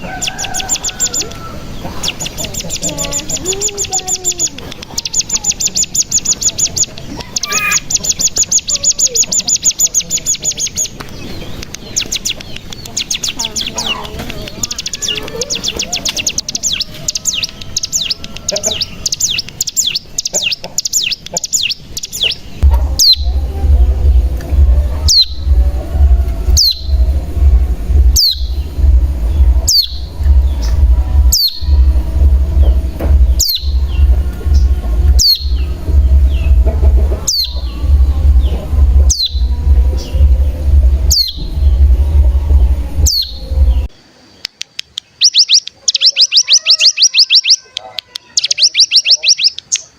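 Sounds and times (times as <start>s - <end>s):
bird trilling: 0.0s - 43.9s, 45.1s - 49.9s
sharp down-slurred bird calls: 0.0s - 49.9s
steady low hum: 22.4s - 44.0s.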